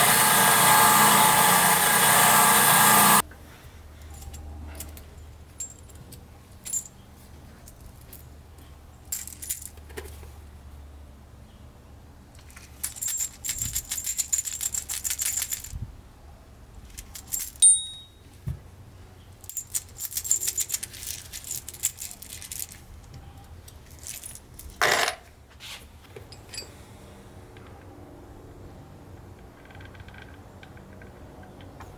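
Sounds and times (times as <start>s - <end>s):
metal on metal clink: 9.1s - 9.8s, 12.8s - 15.8s, 17.0s - 18.3s, 19.4s - 22.8s, 23.8s - 25.2s, 26.3s - 26.8s
metallic clicking and rattling: 9.1s - 10.1s, 12.4s - 15.8s, 16.9s - 18.2s, 19.4s - 22.9s, 23.6s - 25.2s.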